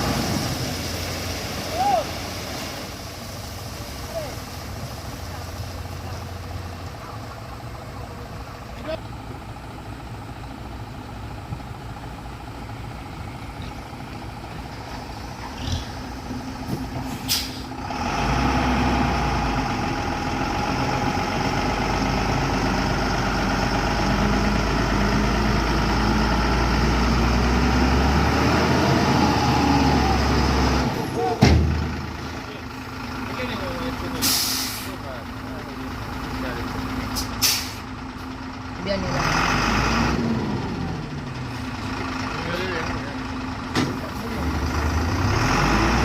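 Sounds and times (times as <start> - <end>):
truck engine running: 0.0 - 46.0
air hiss: 34.2 - 35.0.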